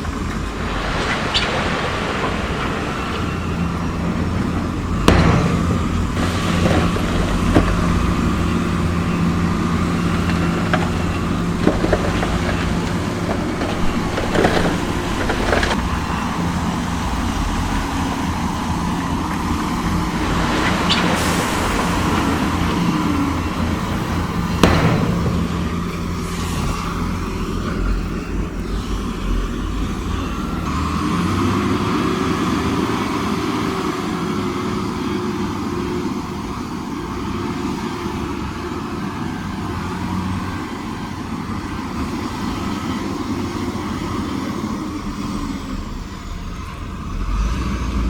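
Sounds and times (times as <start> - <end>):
diesel engine drone: 0.0 - 48.0
metal knocks and clanks: 0.2 - 30.5.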